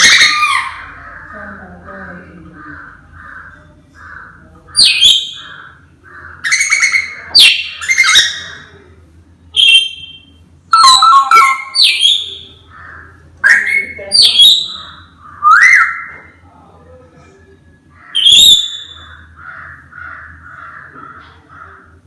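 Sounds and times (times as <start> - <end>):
parrot soft chirps: 0.0 - 1.0, 6.4 - 8.7, 9.6 - 12.6, 13.4 - 16.2
parrot squawking: 0.0 - 1.6, 2.6 - 8.8, 9.6 - 16.3, 18.0 - 21.8.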